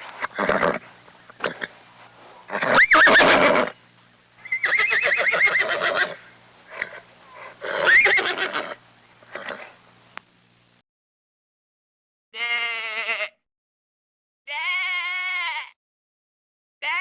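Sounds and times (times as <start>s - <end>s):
horse whinnying: 0.2s - 0.8s, 2.5s - 3.8s, 4.5s - 9.7s.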